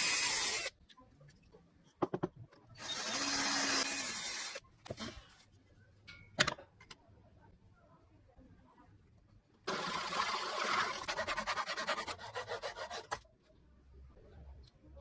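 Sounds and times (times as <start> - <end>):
sandpaper rasping on a surface: 10.7 - 13.2.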